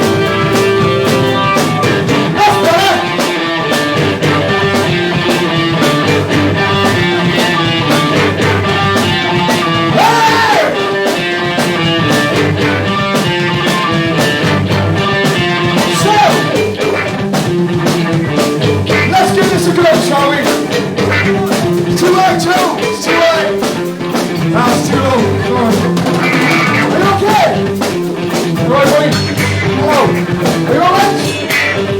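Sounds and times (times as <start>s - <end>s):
live rock band playing: 0.0s - 31.9s.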